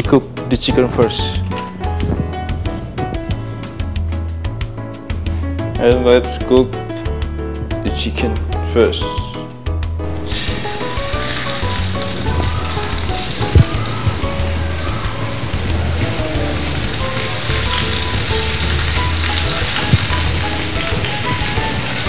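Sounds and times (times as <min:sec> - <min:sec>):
chicken frying in a skillet: 0:10.2 - 0:22.0.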